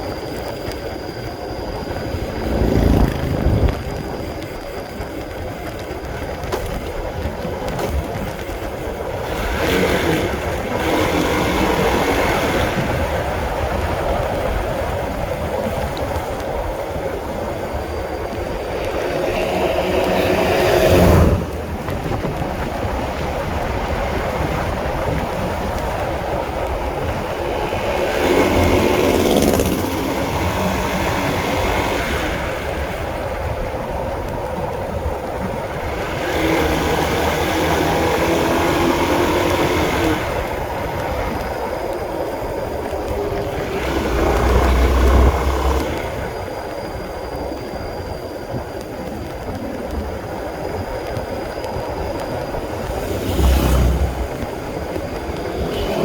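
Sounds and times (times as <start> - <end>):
road noise: 0.0 - 56.0
motorcycle engine revving: 1.8 - 4.7, 9.1 - 13.2, 18.4 - 21.8, 26.6 - 32.8, 35.8 - 40.8, 43.1 - 46.4, 52.7 - 56.0.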